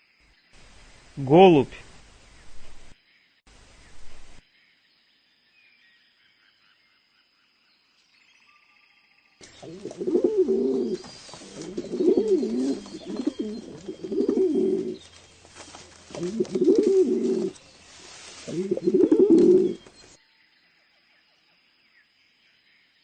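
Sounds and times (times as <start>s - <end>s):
pigeon cooing: 9.4s - 20.1s.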